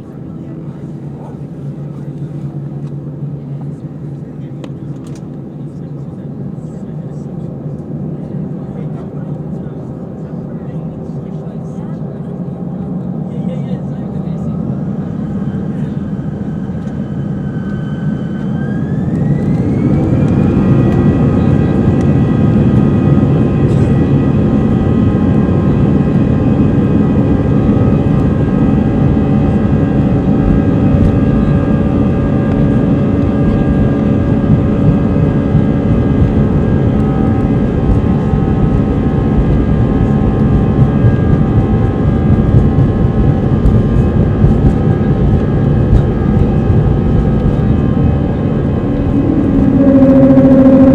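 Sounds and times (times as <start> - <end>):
jet engines spooling up: 15.1 - 50.9.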